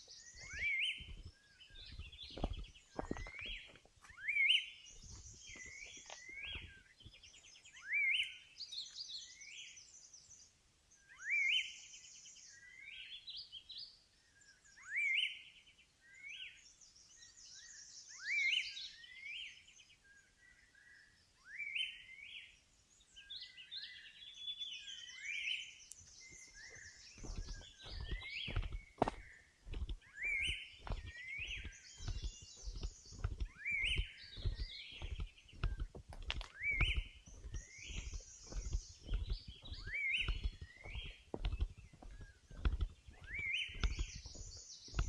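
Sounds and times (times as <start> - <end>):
birds twittering: 0.0 - 45.0
low thuds: 0.4 - 3.8, 27.2 - 45.0.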